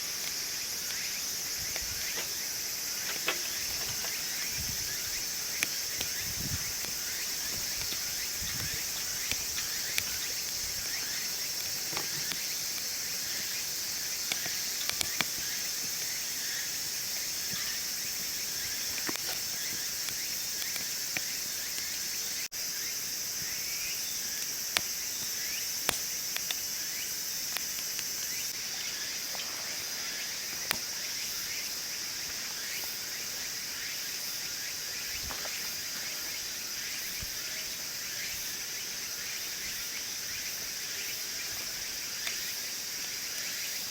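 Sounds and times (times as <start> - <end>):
wood fire crackling: 0.0 - 22.5, 23.2 - 29.0
crickets chirping chorus: 0.0 - 43.9.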